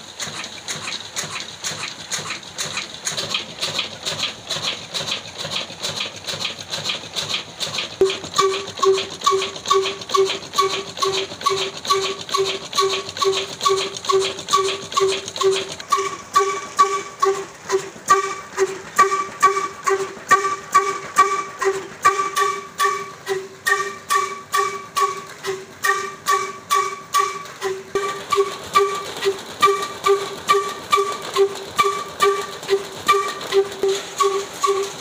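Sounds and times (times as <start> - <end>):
diesel engine running under load: 0.0 - 35.0.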